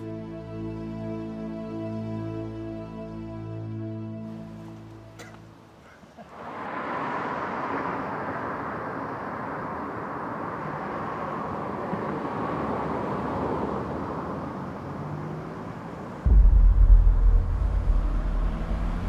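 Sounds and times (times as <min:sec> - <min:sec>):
passing road traffic: 0:04.2 - 0:19.0.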